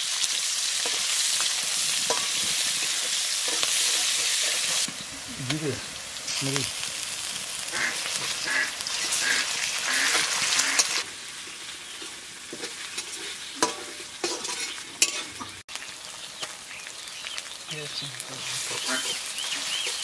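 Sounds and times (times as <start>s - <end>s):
onions sizzling in hot oil: 0.0s - 20.0s
metal spatula scraping and knocking pan: 0.8s - 4.9s, 12.5s - 15.6s.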